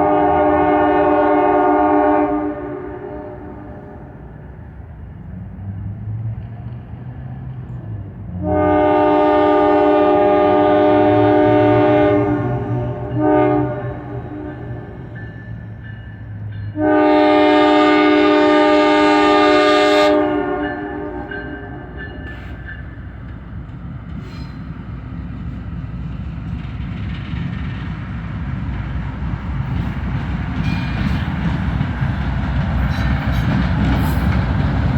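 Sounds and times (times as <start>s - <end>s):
locomotive air horn blasts: 0.0s - 4.2s, 8.4s - 15.0s, 16.7s - 22.7s
diesel engines rumbling: 0.7s - 34.9s.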